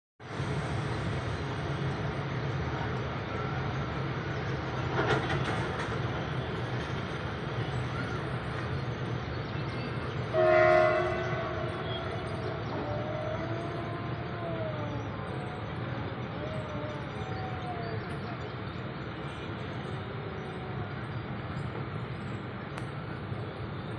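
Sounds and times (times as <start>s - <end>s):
train rumbling: 0.2s - 23.9s
train horn blast: 10.3s - 14.8s.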